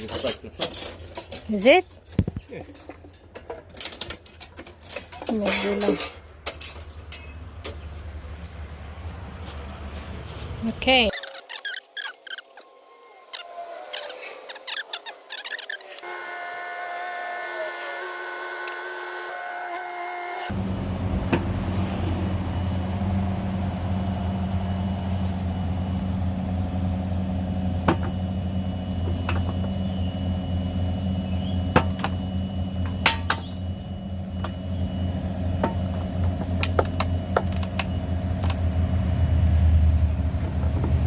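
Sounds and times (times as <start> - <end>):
diesel engine running: 20.4 - 41.0.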